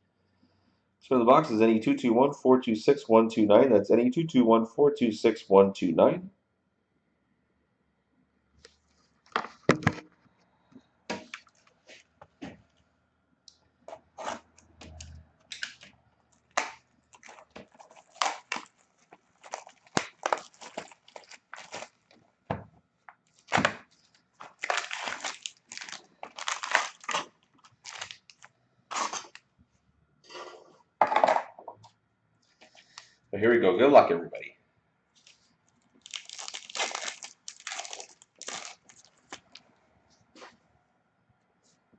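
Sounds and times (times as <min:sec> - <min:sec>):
packaging tearing and crinkling: 0:14.2 - 0:22.2, 0:23.3 - 0:29.4, 0:36.0 - 0:39.6.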